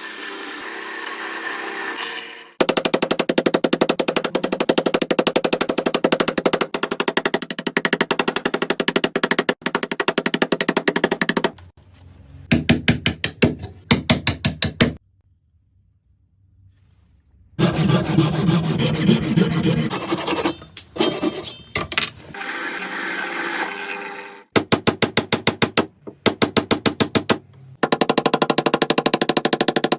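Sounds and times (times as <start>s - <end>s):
tool strokes on wood: 17.6s - 21.4s.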